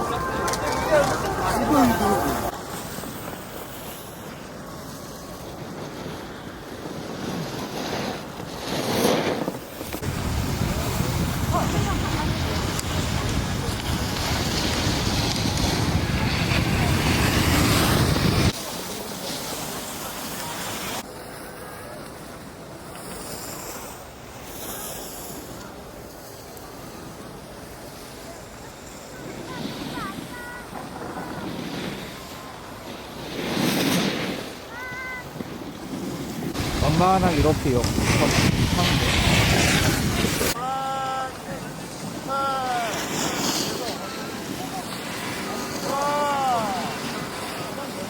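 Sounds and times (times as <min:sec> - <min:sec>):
wind rushing across microphone: 0:00.0 - 0:18.6, 0:35.3 - 0:40.6
skis hissing over snow: 0:00.0 - 0:48.0.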